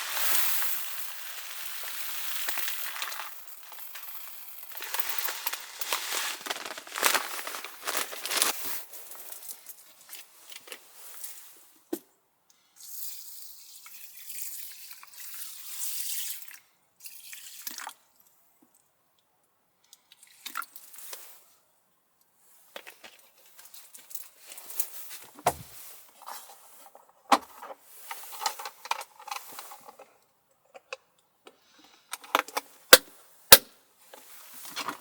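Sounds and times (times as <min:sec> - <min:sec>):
handling clicks and rustles: 0:02.6 - 0:09.4.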